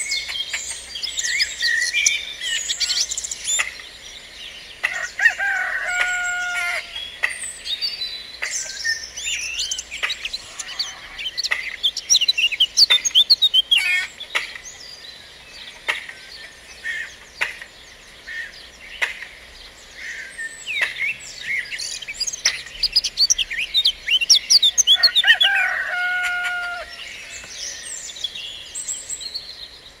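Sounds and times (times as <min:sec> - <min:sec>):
songbirds chirping and whistling: 0:00.0 - 0:30.0
rooster crowing: 0:04.8 - 0:07.0, 0:24.9 - 0:27.1.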